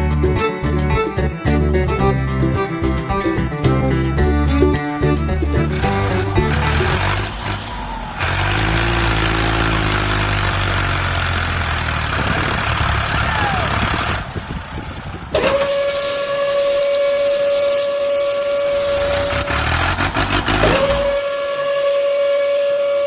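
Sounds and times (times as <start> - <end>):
long whistle-like tone: 15.4 - 20.0, 20.6 - 23.0
steady hiss: 15.6 - 20.0.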